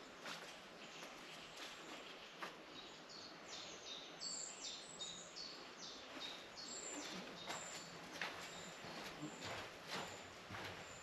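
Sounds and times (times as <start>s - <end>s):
quiet woodland ambience: 0.0s - 11.0s
songbird singing faintly: 0.0s - 11.0s.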